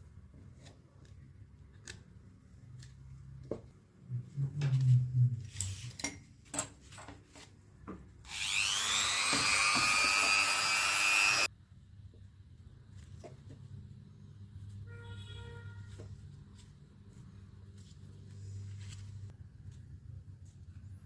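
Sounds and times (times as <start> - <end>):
small electric drill whining: 8.3 - 11.5.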